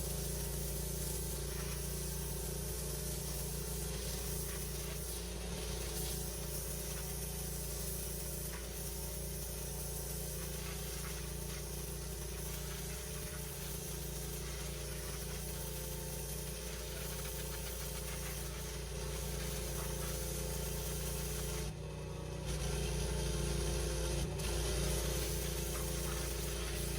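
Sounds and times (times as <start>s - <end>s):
high-pressure water jet hissing: 0.0s - 21.8s, 22.5s - 26.9s
pressure washer engine running: 0.0s - 26.9s.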